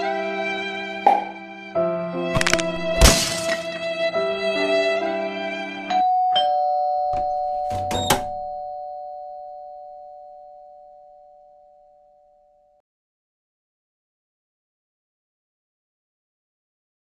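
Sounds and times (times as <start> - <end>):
music: 0.0 - 12.8
two-tone doorbell chime: 5.9 - 12.2.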